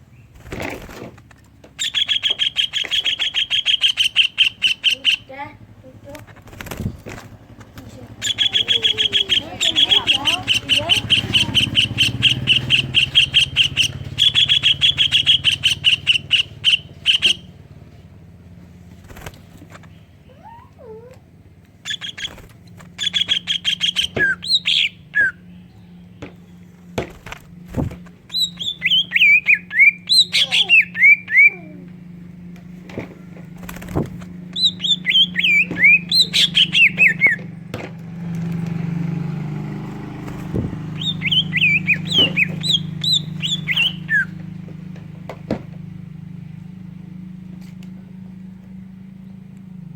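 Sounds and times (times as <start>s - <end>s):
bird singing rattling notes: 0.0s - 49.9s.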